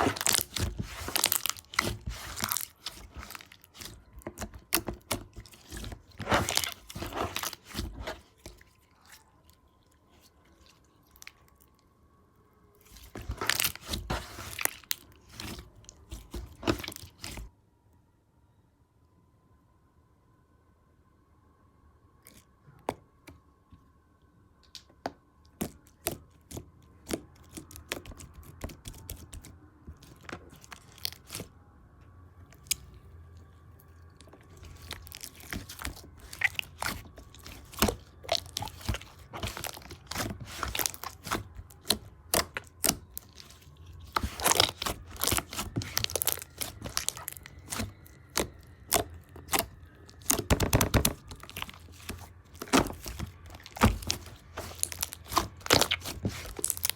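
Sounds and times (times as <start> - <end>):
slime crackling and tearing: 0.0 - 11.6, 12.8 - 17.5, 25.6 - 31.5, 32.5 - 33.0, 34.0 - 56.9.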